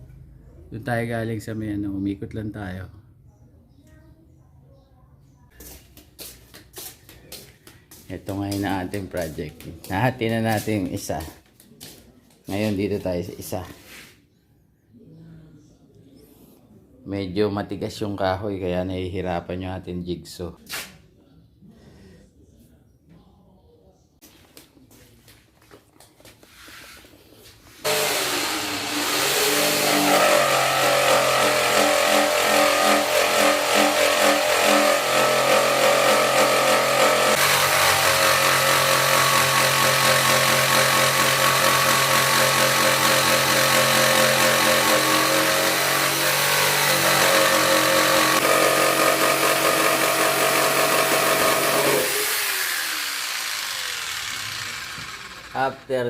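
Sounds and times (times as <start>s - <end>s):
electric jigsaw cutting wood: 27.8s - 56.0s.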